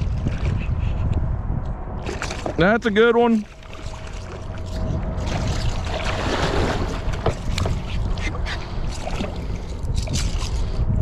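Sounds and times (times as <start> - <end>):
wind buffeting microphone: 0.0 - 11.0
water slapping against kayak: 2.0 - 2.8, 3.4 - 10.6.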